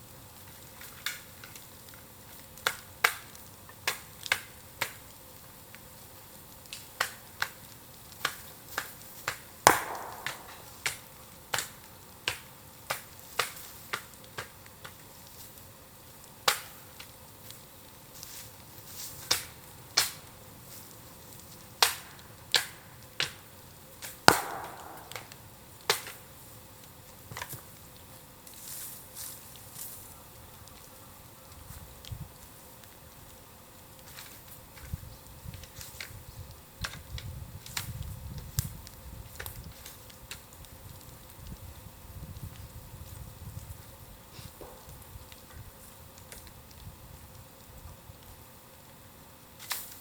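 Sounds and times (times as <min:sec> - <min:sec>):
bamboo crackling in fire: 0:00.0 - 0:50.0
loud bangs: 0:09.7 - 0:10.9, 0:24.3 - 0:25.4.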